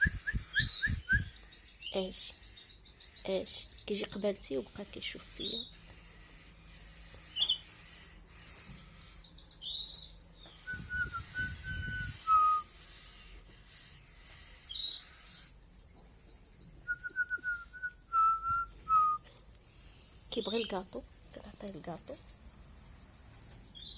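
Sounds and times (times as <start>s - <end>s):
canary chirping: 0.0s - 23.9s
person whistling: 10.7s - 12.6s, 16.9s - 19.2s.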